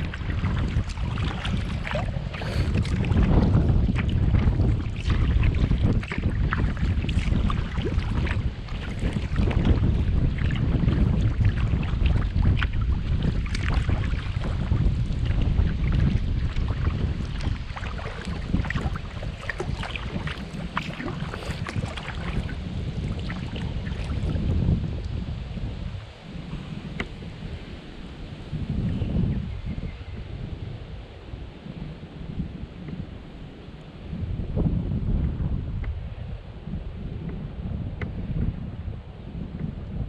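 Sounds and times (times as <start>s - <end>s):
water dripping from paddle: 0.0s - 24.4s
wind buffeting microphone: 0.0s - 40.0s.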